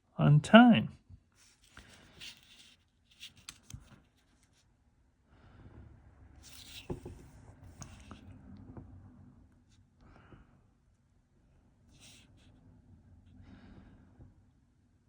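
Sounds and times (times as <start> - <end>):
drawing tool scratching on paper: 6.4 - 8.2.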